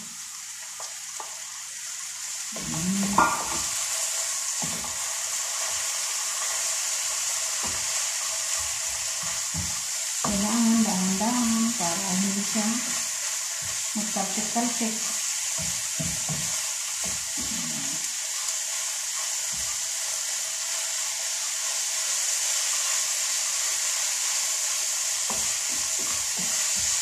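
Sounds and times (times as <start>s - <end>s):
chicken sizzling in a frying pan: 0.0s - 27.0s
wooden spatula scraping a pan: 2.6s - 23.8s, 25.2s - 27.0s.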